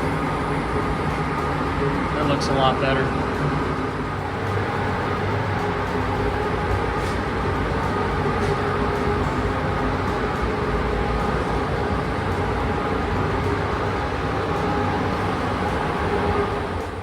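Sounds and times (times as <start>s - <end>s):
faint steady machine tones: 0.0s - 17.0s
machine rushing hum: 0.0s - 17.0s.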